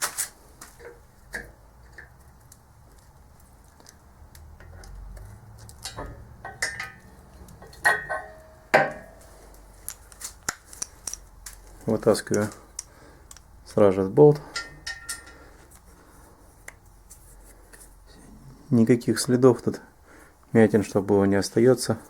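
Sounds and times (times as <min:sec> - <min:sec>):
metal tools clinking on a workbench: 0:14.4 - 0:15.4.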